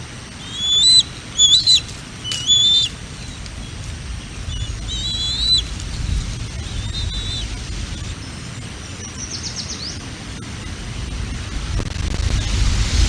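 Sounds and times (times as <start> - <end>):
eagle whistling calls: 0.4 - 3.4, 4.5 - 8.1
wind rumble on microphone: 3.4 - 8.6.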